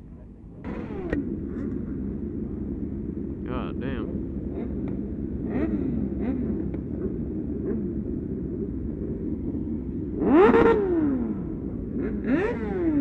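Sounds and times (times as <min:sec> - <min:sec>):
motorcycle engines running: 0:00.0 - 0:13.0
motorcycle revving hard: 0:00.6 - 0:02.6, 0:03.3 - 0:09.2, 0:10.1 - 0:13.0.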